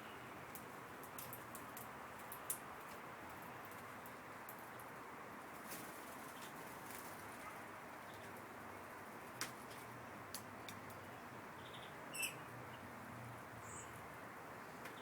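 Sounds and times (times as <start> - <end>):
small birds chirping: 5.7 - 9.0, 10.6 - 15.0.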